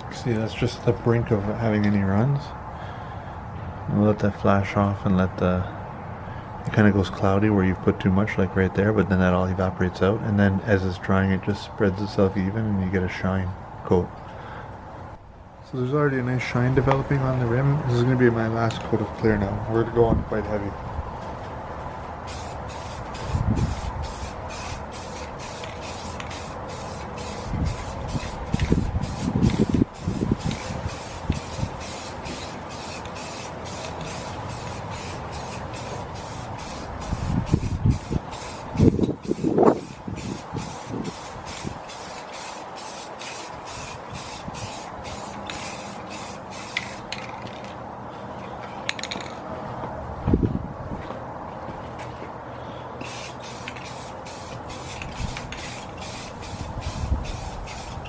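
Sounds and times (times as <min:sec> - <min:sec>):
paint spray hissing: 0:22.2 - 0:47.3, 0:53.0 - 0:58.0.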